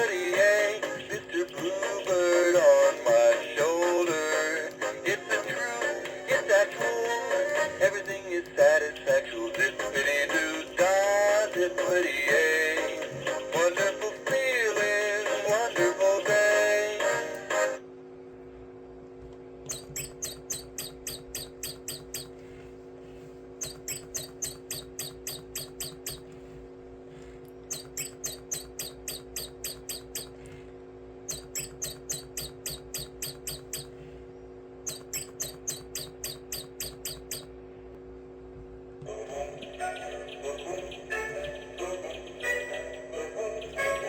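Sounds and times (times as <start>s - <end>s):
low steady hum: 0.0s - 44.0s
toy bird chirping: 7.6s - 14.0s, 19.7s - 22.4s, 23.6s - 26.3s, 27.6s - 30.5s, 31.3s - 34.0s, 34.8s - 37.5s, 39.5s - 44.0s.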